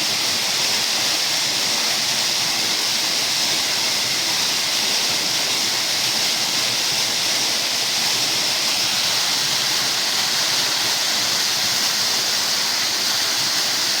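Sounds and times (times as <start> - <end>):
waterfall pouring: 0.0 - 14.0.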